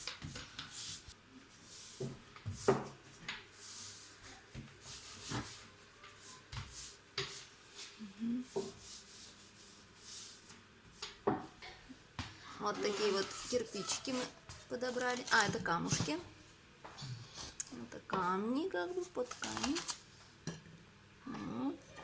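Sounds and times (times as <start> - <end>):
rubbing and scraping: 12.6 - 16.2.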